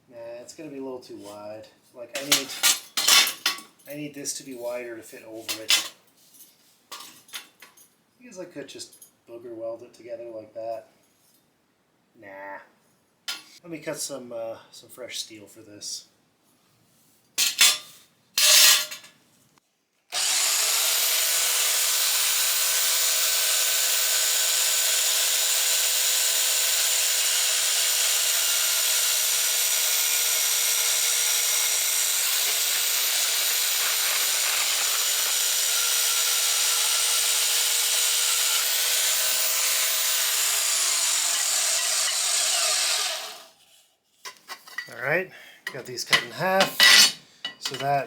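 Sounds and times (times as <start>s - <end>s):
electric cutting tool cutting steel: 18.4s - 18.9s, 20.1s - 43.6s.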